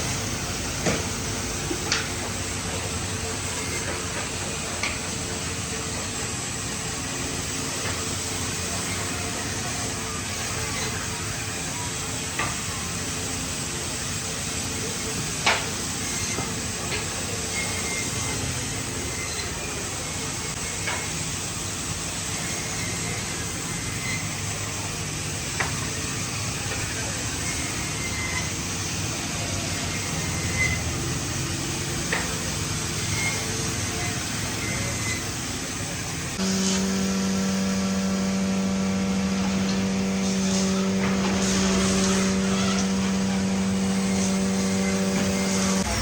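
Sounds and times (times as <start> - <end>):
workshop noise: 0.0 - 46.0
motor running steadily: 22.2 - 46.0.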